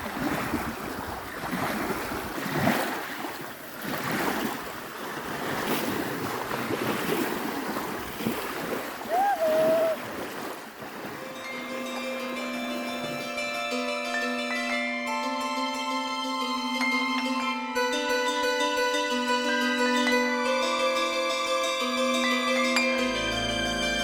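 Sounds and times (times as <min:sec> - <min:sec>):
sea waves washing onto shore: 0:00.0 - 0:13.2
music: 0:11.2 - 0:24.0.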